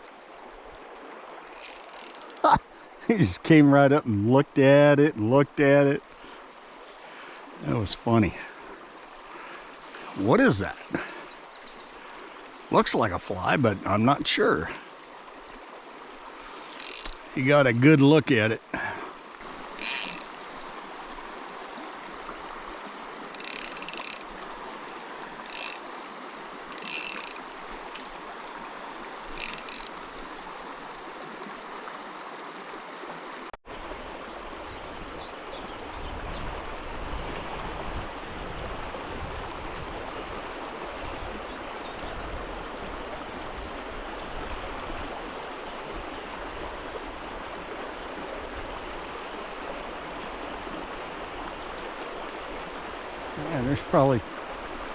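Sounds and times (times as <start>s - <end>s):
stream rushing: 0.0s - 54.9s
fly reel ratchet clicking: 1.5s - 2.4s, 16.4s - 17.3s, 19.7s - 20.3s, 23.3s - 24.4s, 25.4s - 26.0s, 26.7s - 28.2s, 29.3s - 30.0s.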